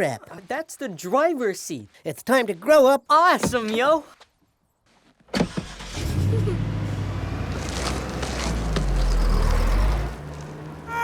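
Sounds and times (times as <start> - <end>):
car engine rumbling: 5.4 - 11.0.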